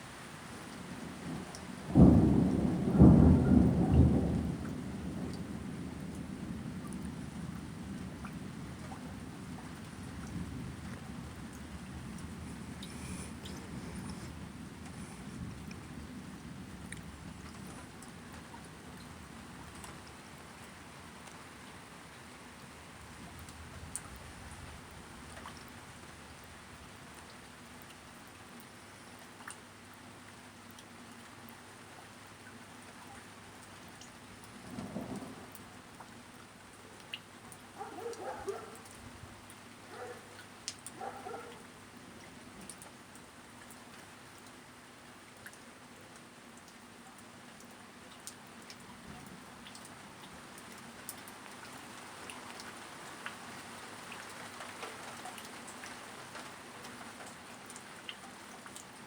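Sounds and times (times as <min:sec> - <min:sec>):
steady rain: 0:00.0 - 0:59.0
low thunder rumble: 0:01.3 - 0:18.5, 0:34.6 - 0:35.6.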